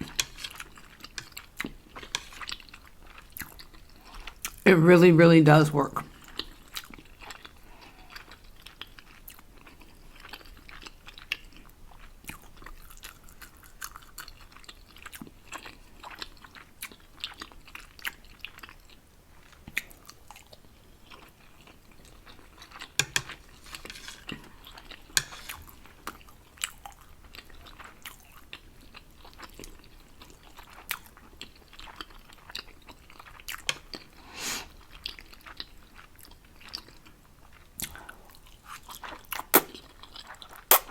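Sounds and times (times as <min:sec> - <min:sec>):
person chewing noodles: 0:00.0 - 0:04.6, 0:06.2 - 0:40.9
wet mouth clicks and smacks: 0:39.3 - 0:39.8, 0:40.6 - 0:40.9.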